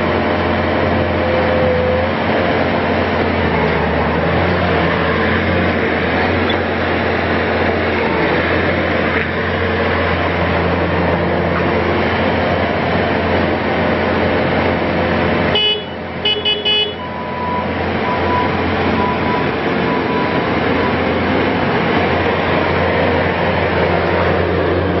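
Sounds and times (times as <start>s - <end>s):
diesel engine running: 0.0s - 25.0s
faint lower beeps: 17.0s - 21.1s.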